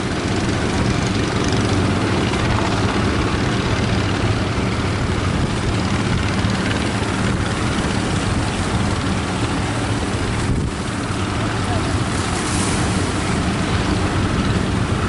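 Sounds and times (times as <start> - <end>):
boat engine humming: 0.0 - 15.0
surf rushing: 0.0 - 15.0
wind: 0.0 - 15.0.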